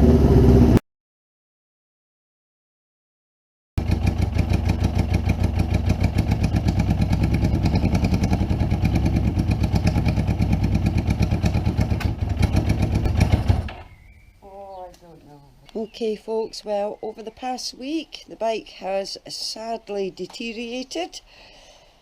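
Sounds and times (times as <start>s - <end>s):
motorcycle engine fast idle: 3.8s - 13.9s.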